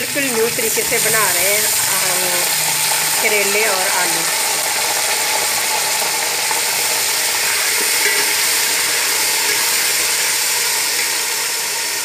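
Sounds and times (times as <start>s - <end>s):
vegetables sizzling in hot oil: 0.0s - 12.0s
metal spatula stirring: 7.6s - 10.3s.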